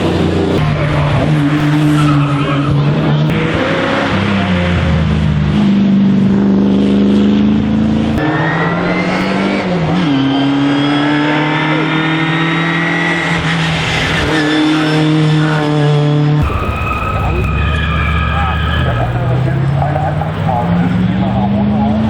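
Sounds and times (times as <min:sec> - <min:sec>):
racing car engine accelerating: 0:00.0 - 0:22.0.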